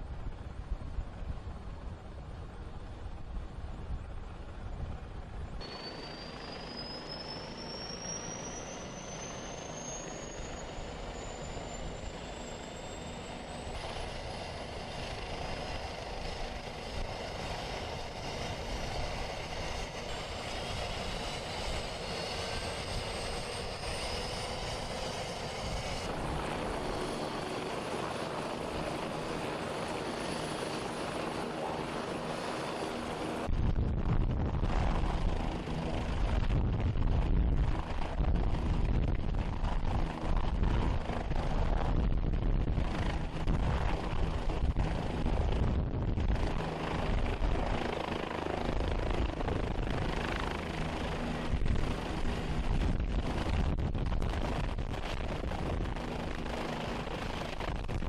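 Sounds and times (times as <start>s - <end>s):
helicopter turbine and rotors: 0.0s - 58.0s.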